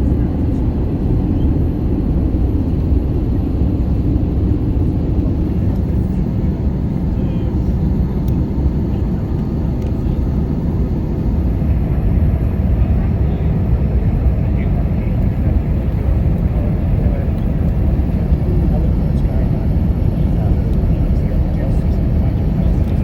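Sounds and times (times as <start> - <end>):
airplane cabin engine rumble: 0.0 - 23.0.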